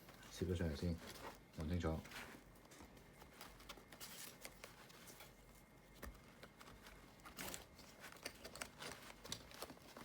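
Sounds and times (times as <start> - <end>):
plastic clicks and rustles: 2.1 - 10.0.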